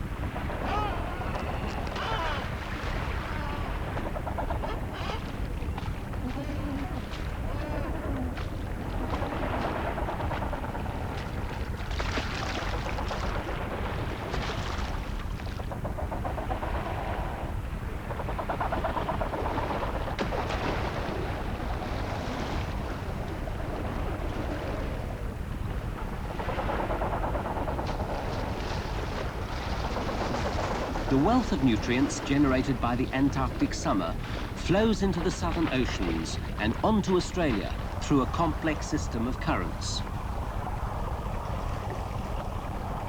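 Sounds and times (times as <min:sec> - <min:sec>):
wind: 0:00.0 - 0:43.0
sea surf rushing: 0:28.3 - 0:42.2.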